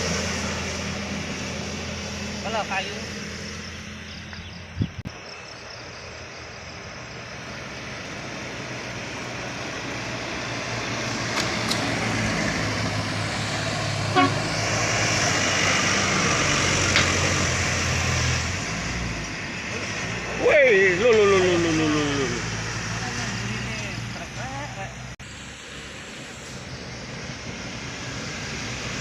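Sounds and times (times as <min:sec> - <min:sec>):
truck horn toot: 0:14.1 - 0:14.6.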